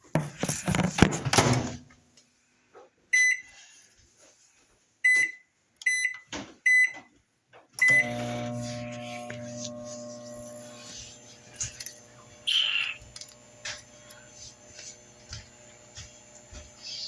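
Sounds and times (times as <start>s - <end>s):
microwave keypad beeping: 5.1s - 7.0s, 7.8s - 8.8s
microwave oven humming: 7.8s - 17.0s.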